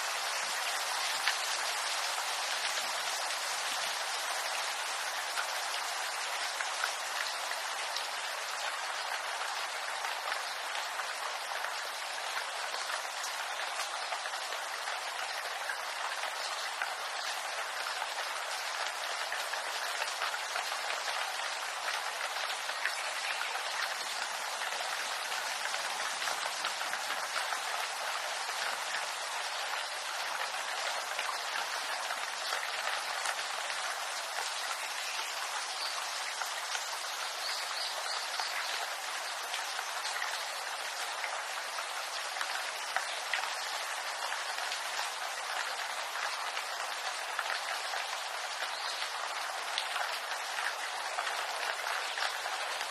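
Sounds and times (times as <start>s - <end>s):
rain pattering on leaves: 0.0s - 52.9s.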